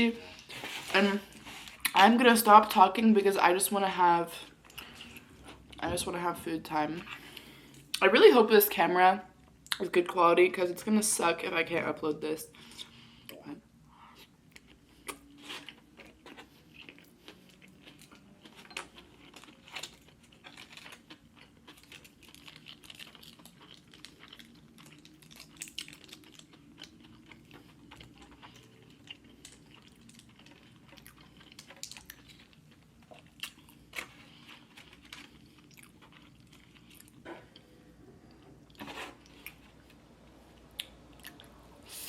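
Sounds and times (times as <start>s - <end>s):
person chewing food: 14.0s - 41.6s.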